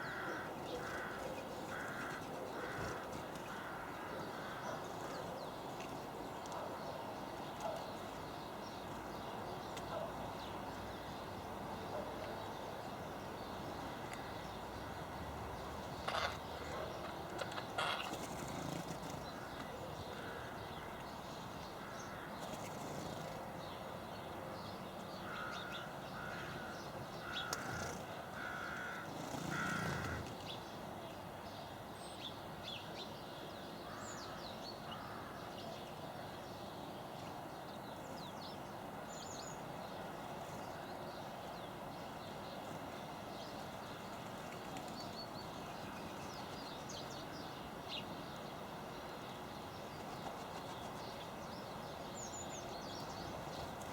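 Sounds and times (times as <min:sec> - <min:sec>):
birds making harsh calls: 0:16.0 - 0:20.6, 0:25.3 - 0:30.5.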